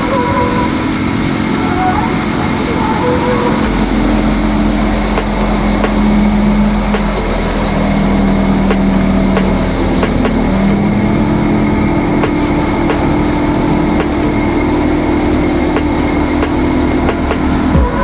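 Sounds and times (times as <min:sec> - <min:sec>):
sharp knocks: 0:03.6 - 0:07.8
motorboat engine running: 0:03.6 - 0:18.0.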